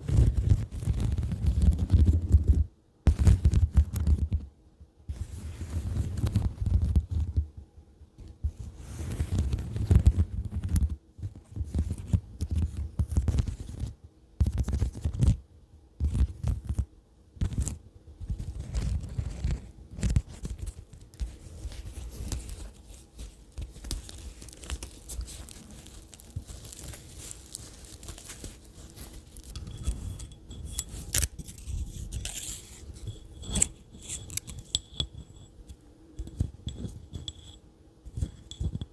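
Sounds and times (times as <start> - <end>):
fingers tapping and scratching: 16.0 - 37.5.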